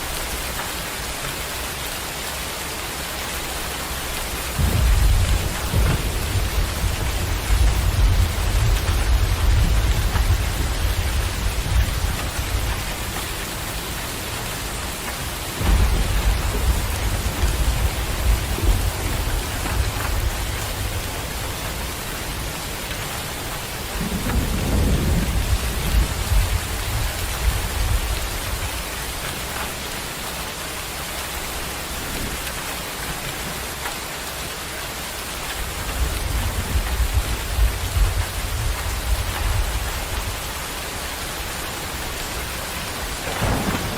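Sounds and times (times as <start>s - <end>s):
steady rain falling: 0.0s - 43.9s
thunder rumbling: 4.0s - 29.8s, 35.4s - 43.9s.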